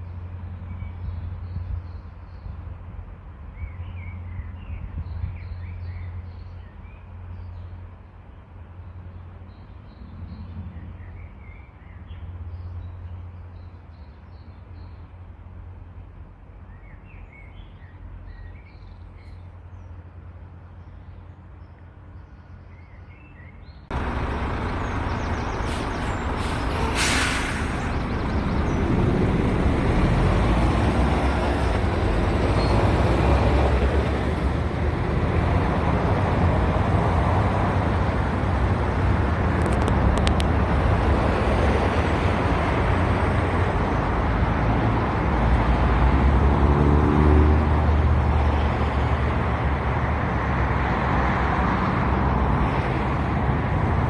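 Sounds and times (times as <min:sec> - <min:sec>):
small birds chirping: 0:20.6 - 0:29.6
low rumble: 0:23.9 - 0:32.8
loud rushing noise: 0:23.9 - 0:35.1
short sharp hiss: 0:25.6 - 0:28.0.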